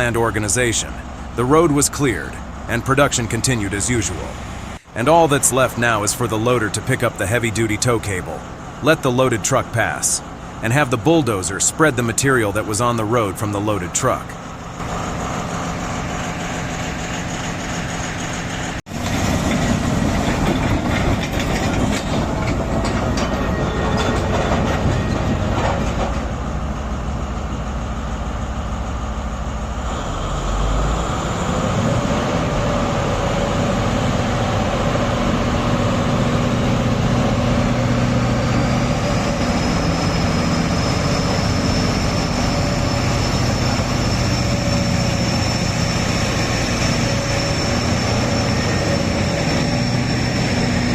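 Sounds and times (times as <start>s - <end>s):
heavy machinery engines droning: 0.0s - 50.9s
high whine: 21.8s - 50.9s.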